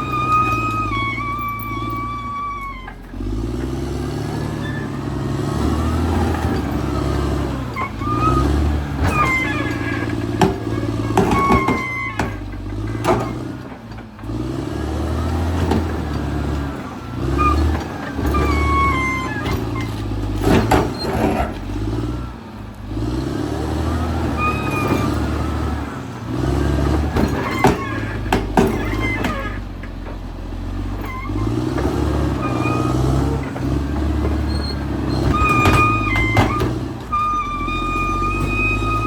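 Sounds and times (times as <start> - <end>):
bulldozer engine under load: 0.0 - 39.0
metallic clanks of tracks: 6.1 - 14.4, 15.3 - 21.8, 24.2 - 26.0, 26.6 - 39.0.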